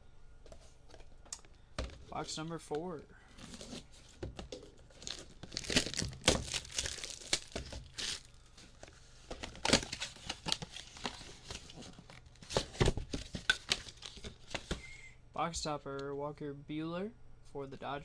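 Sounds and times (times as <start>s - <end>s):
packaging crinkling and tearing: 3.3s - 4.0s, 4.6s - 14.7s.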